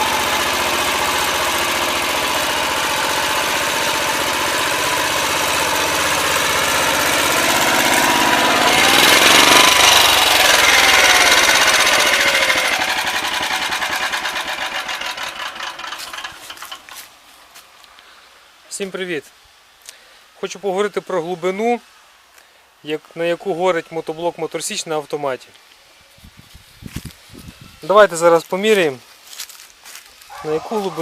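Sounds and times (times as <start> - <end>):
tractor engine running: 0.0 - 17.2.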